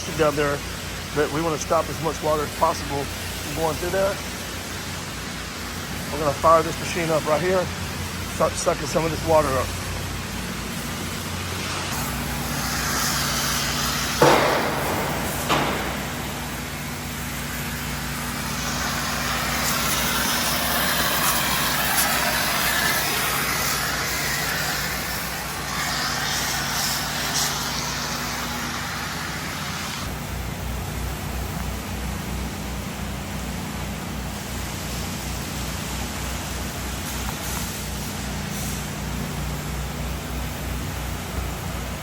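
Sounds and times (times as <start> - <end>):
vacuum machine humming and hissing: 0.0 - 42.0
sharp knocks: 14.2 - 16.5.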